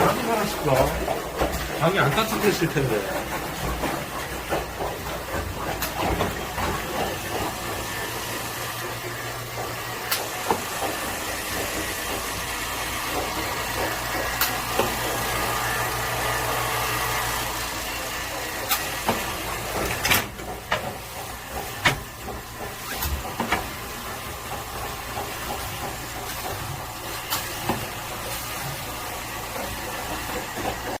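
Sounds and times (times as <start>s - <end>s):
mechanical hum with hiss: 0.0s - 31.0s
sharp clicks and knocks: 3.2s - 7.8s, 18.6s - 28.0s.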